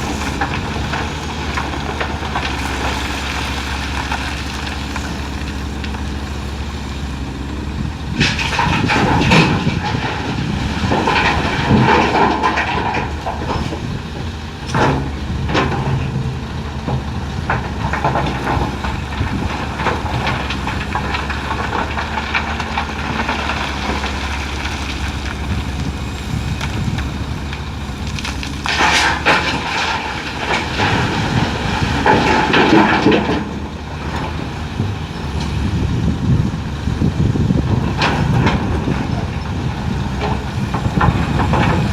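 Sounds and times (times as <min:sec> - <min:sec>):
excavator diesel engine running: 0:00.0 - 0:41.9
rocks crashing into truck bed: 0:08.1 - 0:13.9, 0:28.1 - 0:34.5, 0:37.6 - 0:41.9.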